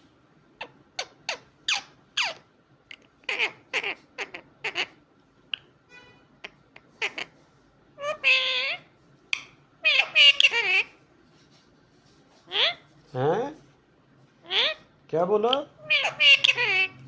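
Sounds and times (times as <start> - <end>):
parakeet squawking: 0.6 - 2.4, 3.2 - 5.7, 6.4 - 7.4, 8.0 - 11.0, 12.4 - 12.9, 14.4 - 14.9, 15.5 - 17.0.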